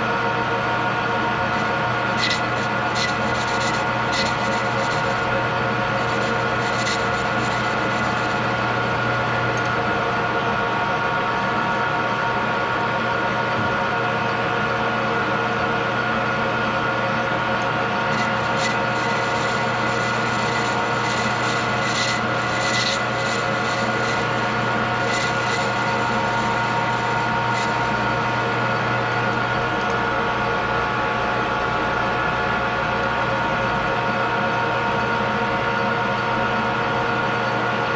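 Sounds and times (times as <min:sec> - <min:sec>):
tool scraping metal: 0:01.5 - 0:09.8, 0:18.1 - 0:29.6
metal lathe running: 0:01.5 - 0:09.9, 0:18.1 - 0:29.9.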